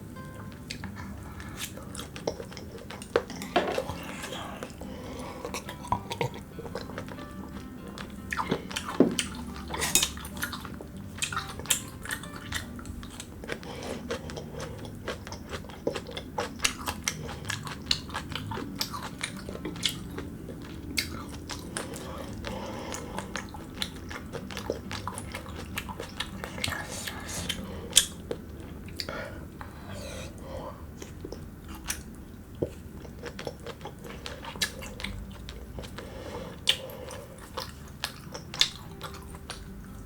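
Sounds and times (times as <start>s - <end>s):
biting and chewing: 0.6s - 40.0s
utensils clinking against dishes: 9.0s - 10.6s.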